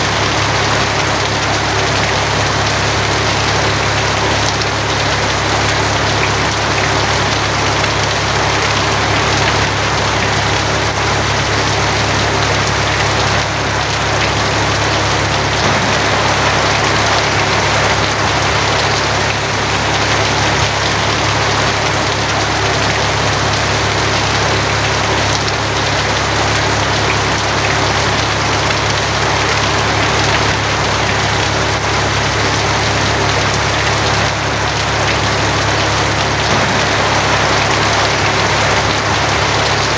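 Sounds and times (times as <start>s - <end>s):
heavy rain on a tin roof: 0.0s - 39.9s
low drone: 13.7s - 20.3s, 36.4s - 39.9s.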